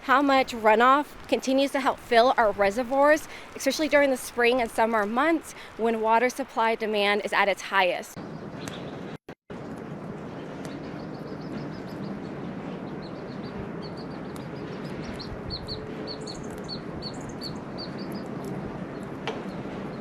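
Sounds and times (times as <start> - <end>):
bird chirping: 10.7 - 20.0.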